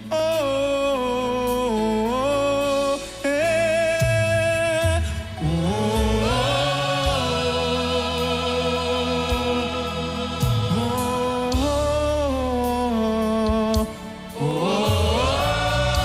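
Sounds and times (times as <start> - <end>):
instrumental accompaniment: 1.2 - 16.0
choir and congregation singing: 5.3 - 16.0.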